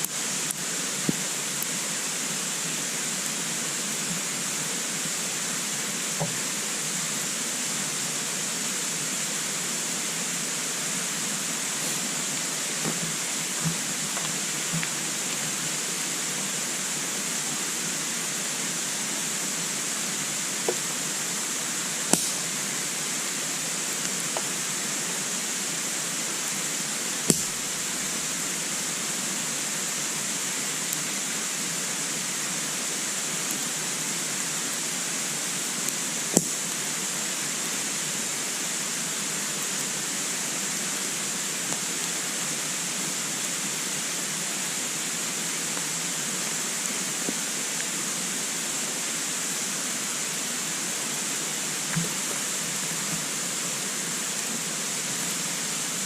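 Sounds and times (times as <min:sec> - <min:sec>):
fire hiss: 0:00.0 - 0:56.0
wood fire crackling pops: 0:11.8 - 0:15.6, 0:22.0 - 0:22.6, 0:27.2 - 0:28.4, 0:36.3 - 0:36.6.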